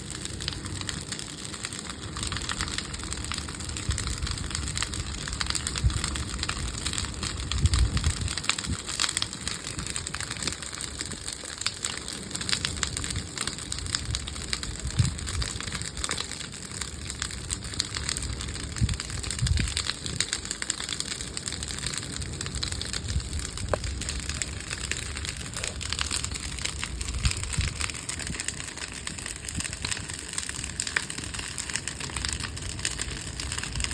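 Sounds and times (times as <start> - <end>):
bonfire crackling and popping: 0.0 - 33.9
fire hissing: 0.0 - 33.9
low rumbles: 21.8 - 33.9.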